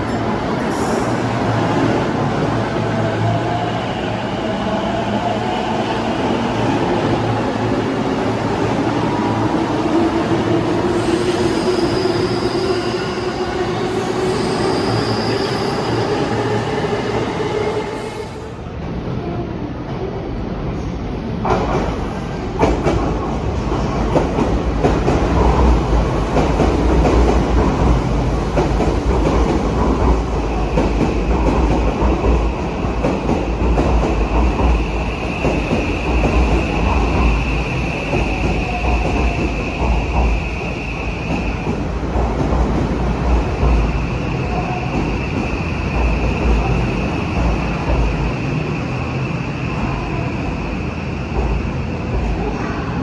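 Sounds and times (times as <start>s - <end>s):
train rolling past rumble: 21.2s - 53.0s.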